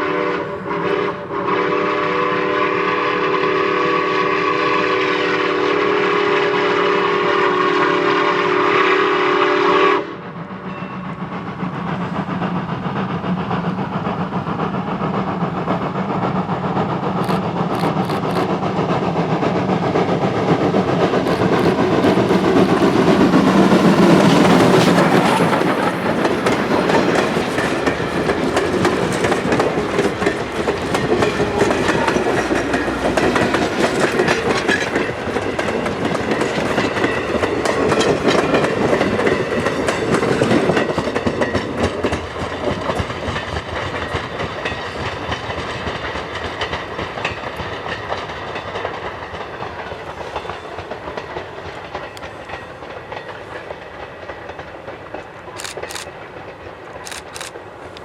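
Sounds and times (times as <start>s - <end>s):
steam locomotive whistle: 0.0s - 11.1s, 31.0s - 33.7s
train wheel and rail clatter: 0.0s - 58.0s.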